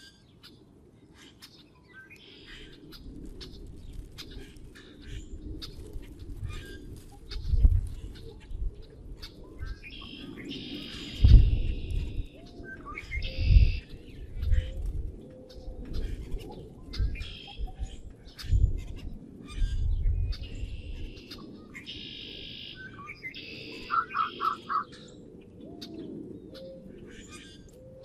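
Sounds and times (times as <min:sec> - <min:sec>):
songbirds chirping and singing: 0:00.0 - 0:28.0.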